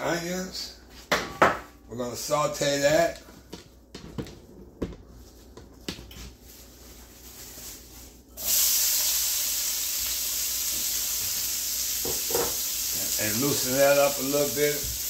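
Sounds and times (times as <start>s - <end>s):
onions sizzling in oil: 8.4s - 15.0s.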